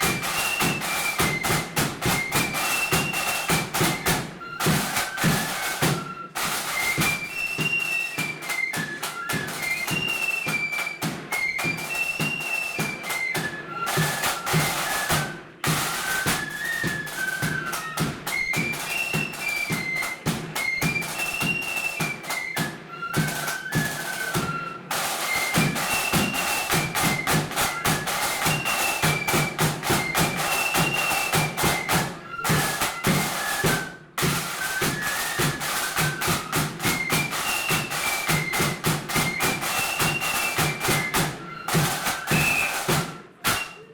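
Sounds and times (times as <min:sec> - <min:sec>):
flutes playing a march: 0:00.0 - 0:43.9
snare drums: 0:00.0 - 0:43.9.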